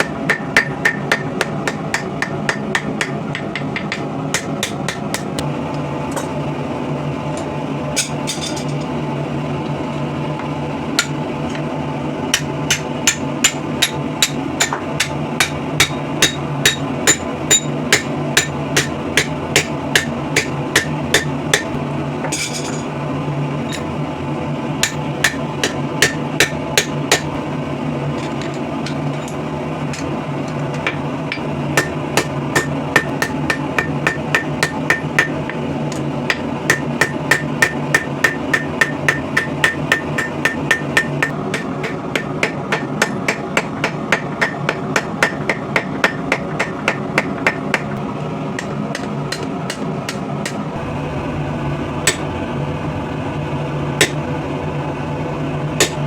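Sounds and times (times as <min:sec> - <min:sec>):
hammer striking steel on anvil: 0:00.0 - 0:05.4, 0:07.4 - 0:08.9, 0:11.0 - 0:11.7, 0:12.3 - 0:22.9, 0:24.8 - 0:27.4, 0:28.2 - 0:47.9, 0:48.6 - 0:50.6, 0:52.0 - 0:52.2, 0:54.0 - 0:54.2, 0:55.8 - 0:56.0.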